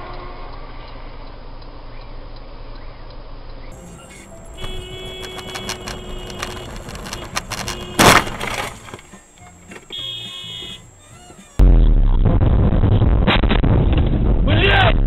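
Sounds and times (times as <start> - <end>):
car crash crunch: 3.7 - 10.8.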